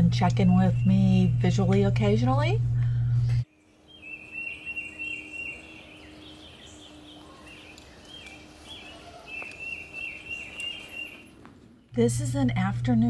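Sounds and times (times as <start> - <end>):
faint steady hum: 0.0 - 13.0
bird chirping: 3.5 - 12.1.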